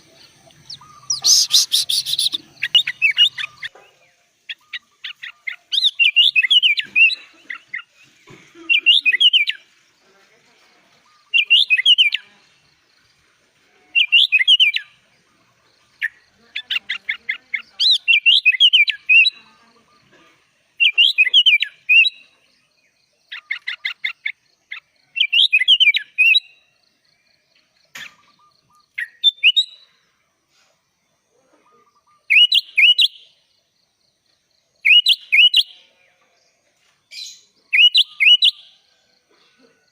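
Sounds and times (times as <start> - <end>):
bird singing whistled phrases: 0.5 - 3.7, 4.5 - 6.9, 11.1 - 12.3, 14.0 - 14.9, 17.8 - 19.4, 25.2 - 26.6, 28.2 - 29.8, 31.7 - 33.3, 34.8 - 35.8, 37.3 - 38.7.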